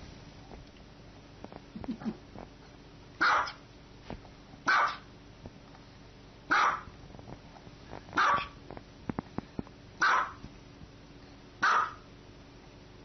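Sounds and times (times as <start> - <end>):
small dog barking: 3.2 - 3.6, 4.7 - 5.1, 6.5 - 6.9, 8.2 - 8.6, 10.0 - 10.4, 11.6 - 12.1.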